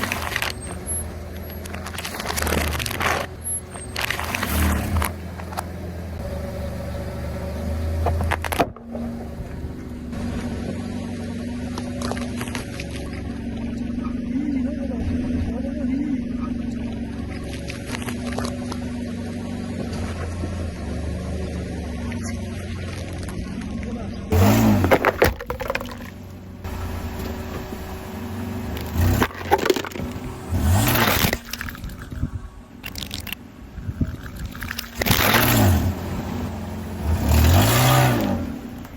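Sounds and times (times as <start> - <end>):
objects crushed under tyre: 0.0 - 5.9, 8.0 - 9.6, 24.3 - 33.4, 34.3 - 38.9
car engine running: 0.0 - 38.9
droning engine hum: 0.0 - 38.9.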